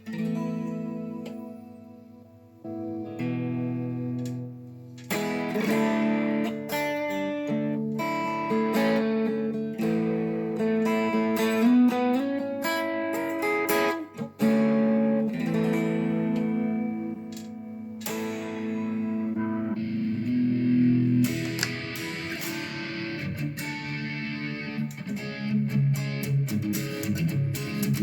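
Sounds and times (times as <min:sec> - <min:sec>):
electric guitar through amp: 0:14.6 - 0:28.0.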